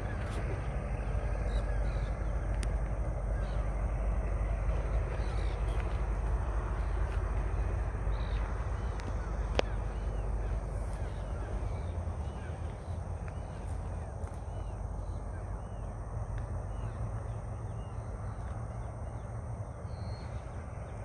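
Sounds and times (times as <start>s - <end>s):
birds calling: 0.0s - 21.0s
low outdoor rumble: 0.0s - 21.0s.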